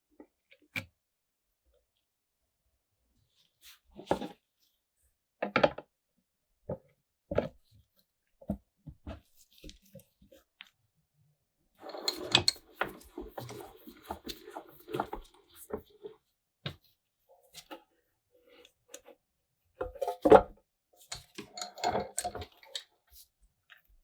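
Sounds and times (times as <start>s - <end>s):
tools clicking and scraping metal: 11.8s - 15.1s, 21.1s - 22.9s.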